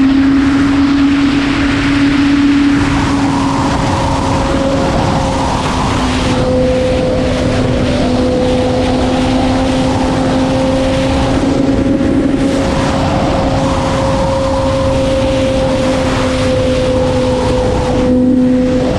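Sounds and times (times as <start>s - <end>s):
motorcycle engine at high revs: 0.0s - 18.9s
wind noise: 0.0s - 18.9s.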